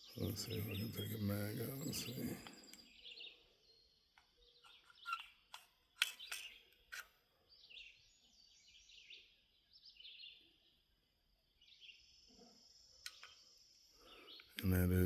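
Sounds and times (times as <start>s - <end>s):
faint chirping: 0.0s - 15.0s
pistol metallic clicks: 4.2s - 7.2s.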